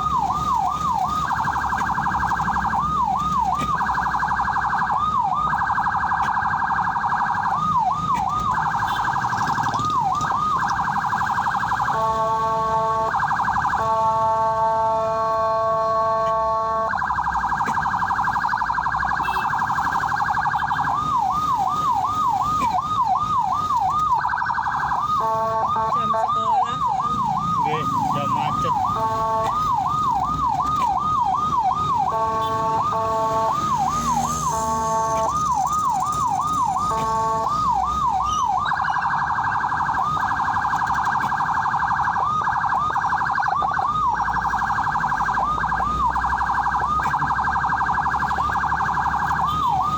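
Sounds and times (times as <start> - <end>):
ambulance siren: 0.0 - 49.9
multi-tone horn blasts: 11.9 - 13.1, 25.2 - 26.3, 32.1 - 33.6.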